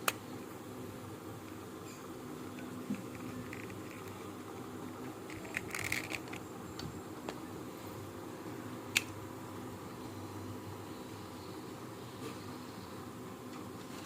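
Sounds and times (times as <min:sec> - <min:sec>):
clock parts clicking and scraping: 0:02.6 - 0:06.4.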